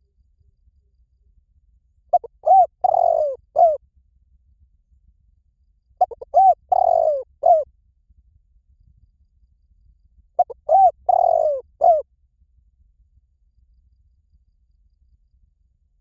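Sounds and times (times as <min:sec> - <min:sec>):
dove cooing: 0:02.1 - 0:03.8, 0:06.0 - 0:07.6, 0:10.4 - 0:12.0.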